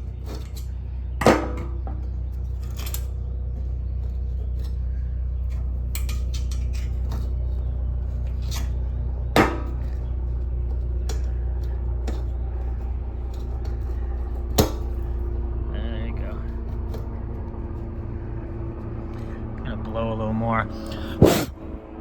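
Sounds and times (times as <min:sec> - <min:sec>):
small metal parts clicking and scraping: 0:00.0 - 0:00.8, 0:02.3 - 0:03.2, 0:05.4 - 0:08.8
steady low hum: 0:00.0 - 0:22.0.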